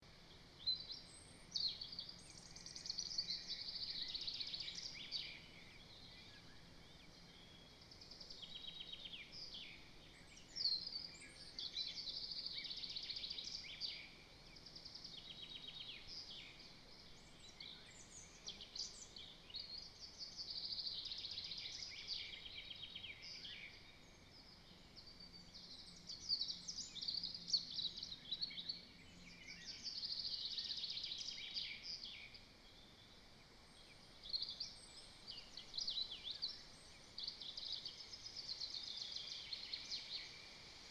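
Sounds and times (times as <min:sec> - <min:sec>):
songbird singing trills: 0:00.0 - 0:40.9.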